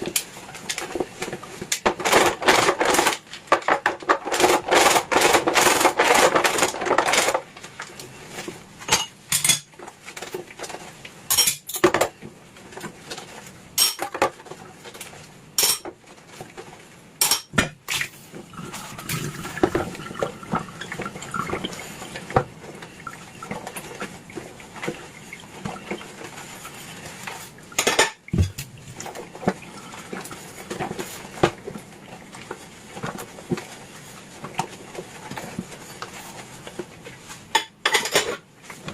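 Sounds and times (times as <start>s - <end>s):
dishes and cutlery clinking: 8.9s - 9.8s, 11.3s - 12.1s, 13.8s - 14.4s, 15.6s - 15.9s, 17.2s - 17.7s, 27.3s - 29.2s, 37.5s - 38.4s.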